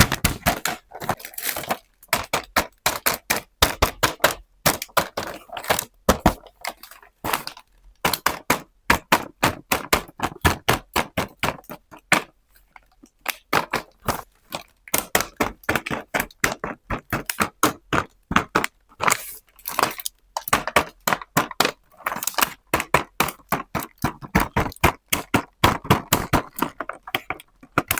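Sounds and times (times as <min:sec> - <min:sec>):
packaging crackling: 0:00.0 - 0:02.1.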